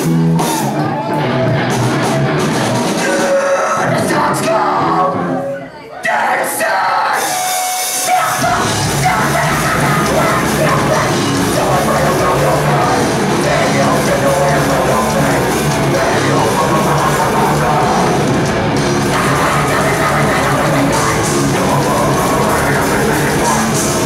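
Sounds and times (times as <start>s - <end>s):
heavy metal band playing: 0.0s - 5.6s, 6.4s - 24.0s
person yelling vocals: 8.1s - 18.2s.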